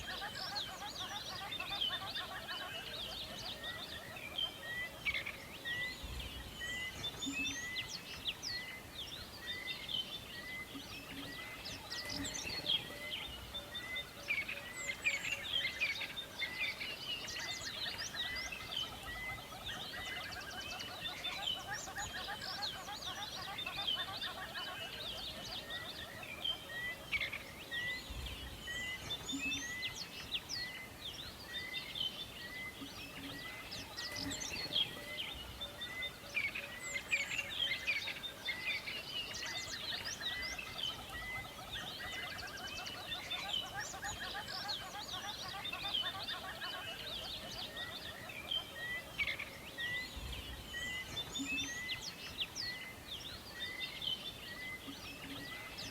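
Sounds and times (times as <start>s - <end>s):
songbirds chirping and trilling: 0.0s - 55.9s.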